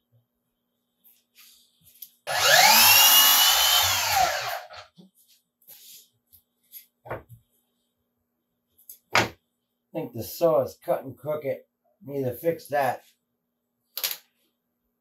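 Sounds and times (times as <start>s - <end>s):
power saw whining: 2.3s - 4.8s.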